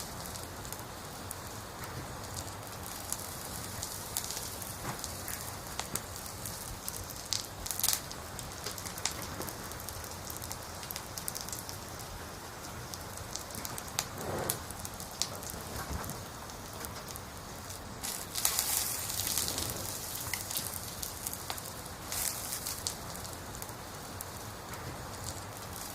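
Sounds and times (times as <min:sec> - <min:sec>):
crackles: 0:00.0 - 0:25.9
steady rain hiss: 0:00.0 - 0:25.9.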